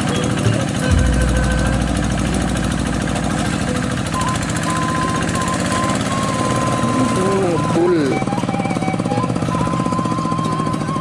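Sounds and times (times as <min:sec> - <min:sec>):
tractor engine running: 0:00.0 - 0:11.0
heavy low rumble: 0:00.4 - 0:05.8.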